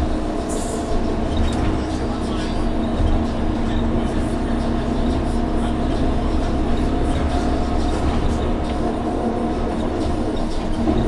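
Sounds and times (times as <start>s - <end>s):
bus engine running: 0.0s - 11.0s
low road rumble: 0.0s - 11.0s.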